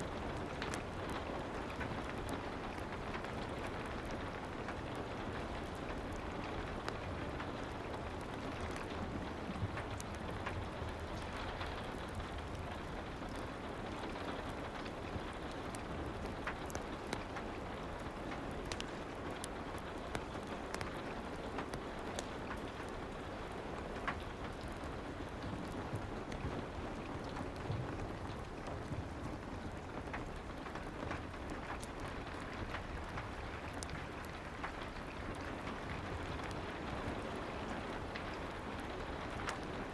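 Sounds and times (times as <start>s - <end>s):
fire pops and crackles: 0.0s - 39.9s
soft rain: 0.0s - 39.9s.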